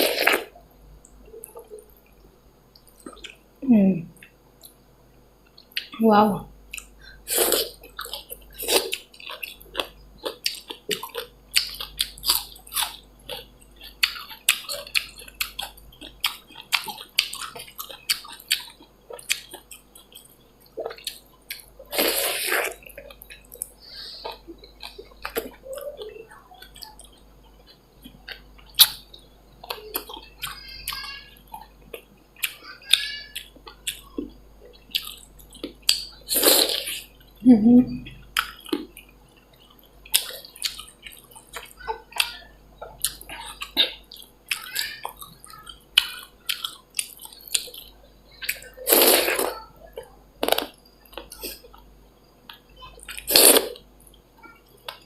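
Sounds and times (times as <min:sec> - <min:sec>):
wet slurp: 0:53.2 - 0:53.8.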